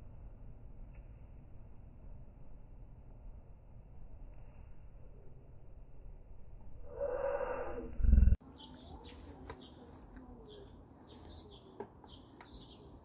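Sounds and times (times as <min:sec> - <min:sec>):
muffled noise: 0:06.9 - 0:10.9
birds chirping: 0:06.9 - 0:13.0.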